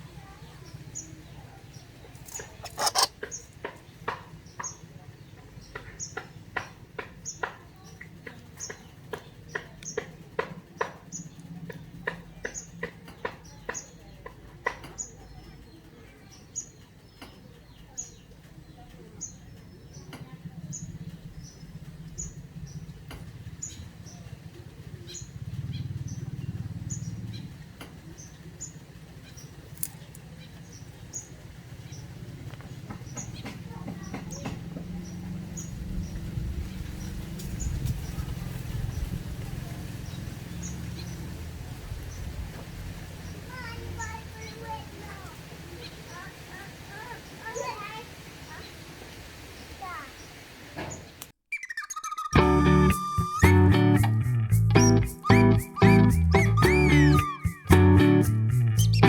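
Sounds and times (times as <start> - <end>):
bird chick peeping: 51.5 - 59.0.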